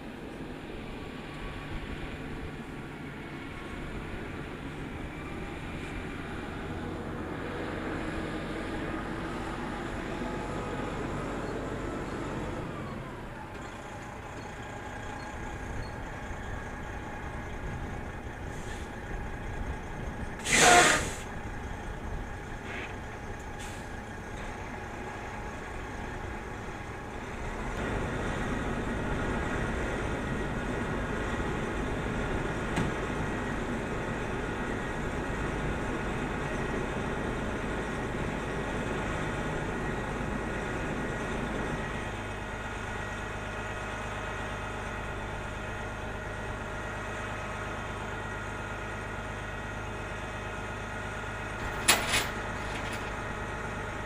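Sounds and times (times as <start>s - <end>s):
air release hiss: 20.4s - 21.3s.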